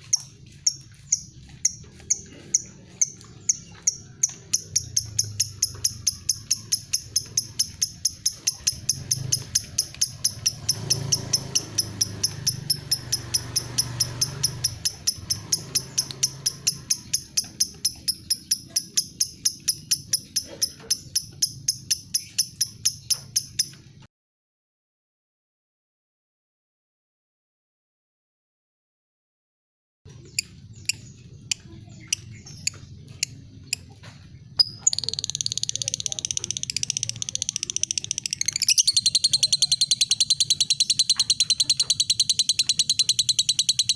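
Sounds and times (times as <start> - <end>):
bird high-pitched ticking call: 0.0 - 23.8, 34.6 - 43.9.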